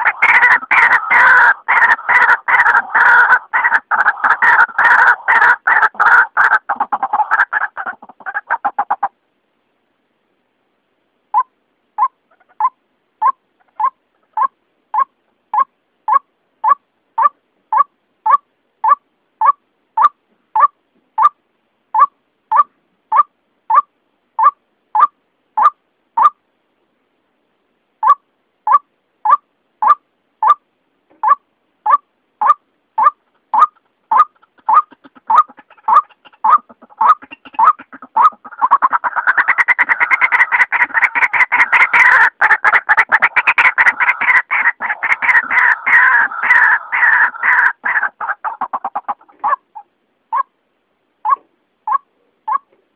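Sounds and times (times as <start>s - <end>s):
waterhen calling: 0.0s - 9.2s, 11.3s - 21.4s, 22.0s - 26.4s, 28.0s - 50.6s, 51.2s - 52.8s.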